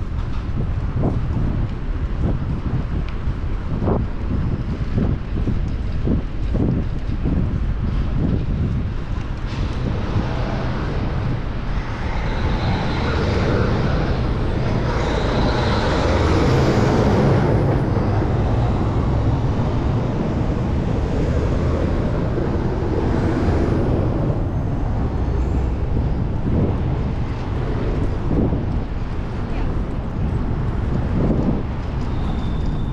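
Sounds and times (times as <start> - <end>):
city road traffic: 0.0 - 32.9
wind rumbling on microphone: 0.0 - 32.9
vehicle passing: 9.4 - 31.2.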